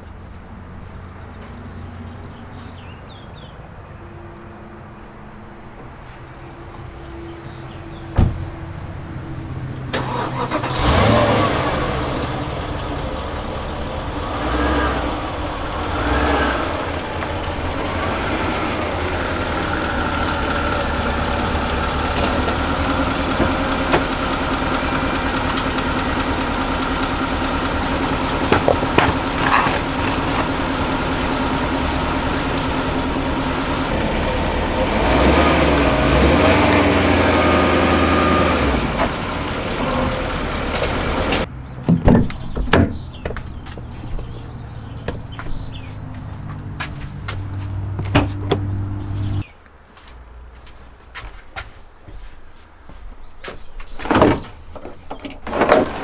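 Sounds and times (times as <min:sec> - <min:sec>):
car engine starting and idling: 0:09.6 - 0:41.5, 0:44.6 - 0:49.5.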